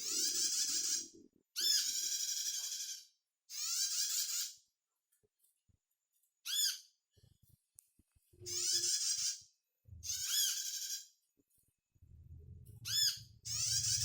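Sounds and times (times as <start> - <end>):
bird trilling: 0.0 - 4.5, 10.0 - 11.1, 12.8 - 14.0
faint low sound: 11.9 - 12.9.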